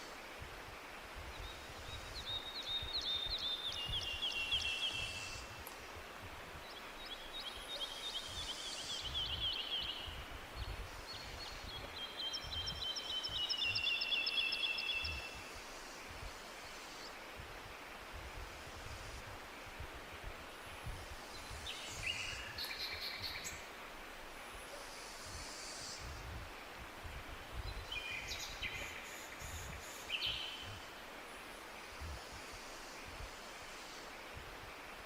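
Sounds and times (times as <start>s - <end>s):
forest ambience hiss: 0.0s - 35.0s.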